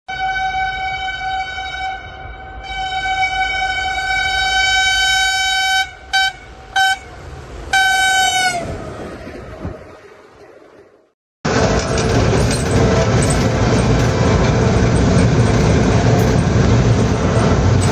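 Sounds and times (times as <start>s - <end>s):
locomotive horn blasts: 0.1s - 8.9s
passing train rumble: 0.1s - 17.9s.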